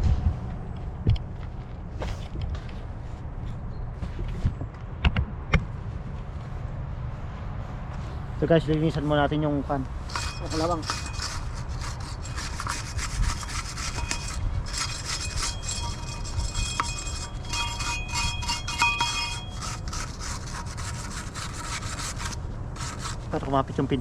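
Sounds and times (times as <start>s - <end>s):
thin high ringing tone: 10.1s - 20.0s
scrubbing metal by hand: 10.1s - 23.5s.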